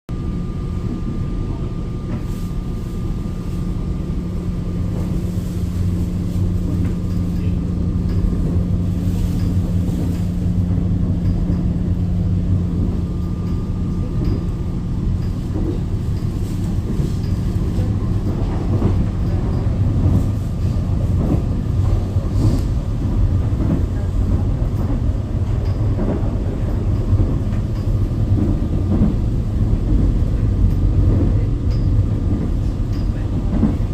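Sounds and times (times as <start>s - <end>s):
subway train rumble with motor hum: 0.1s - 33.9s.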